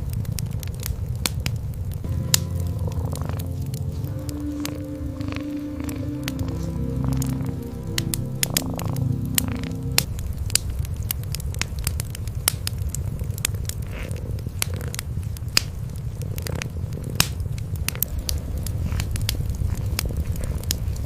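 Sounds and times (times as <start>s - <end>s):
wood fire crackling and popping: 0.0s - 21.0s
cats purring: 2.5s - 9.8s, 12.8s - 21.0s.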